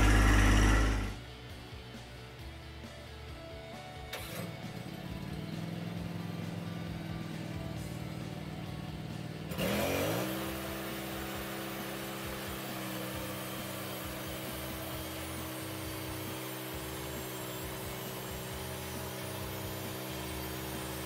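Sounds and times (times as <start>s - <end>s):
gas engine revving: 0.0s - 1.2s, 4.1s - 21.0s
saw blade cutting log: 0.0s - 1.2s, 9.5s - 21.0s.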